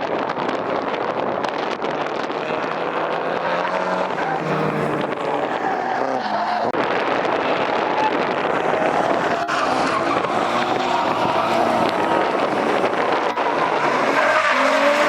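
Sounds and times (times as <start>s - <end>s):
car engine at high revs: 0.1s - 15.0s
tyres squealing and skidding: 2.3s - 6.8s, 7.6s - 15.0s.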